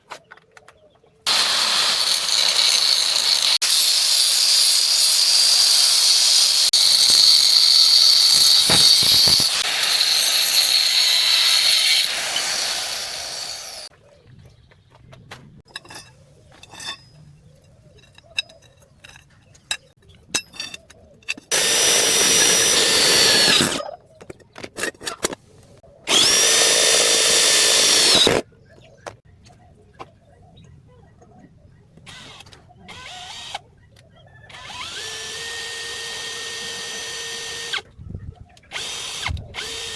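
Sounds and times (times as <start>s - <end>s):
power tool grinding metal: 1.3s - 13.9s, 21.5s - 23.8s, 26.1s - 28.4s, 34.6s - 37.8s.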